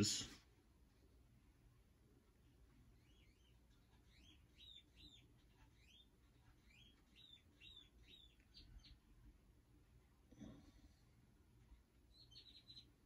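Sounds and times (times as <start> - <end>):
bird chirping: 2.8 - 9.3, 12.0 - 13.0.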